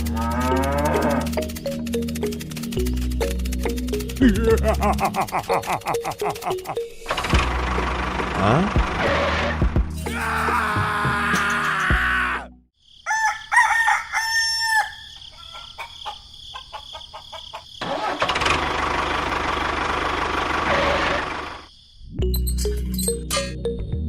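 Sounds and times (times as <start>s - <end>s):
rough noisy engine run: 0.0s - 9.9s, 17.9s - 21.6s
rooster crowing: 13.0s - 17.8s.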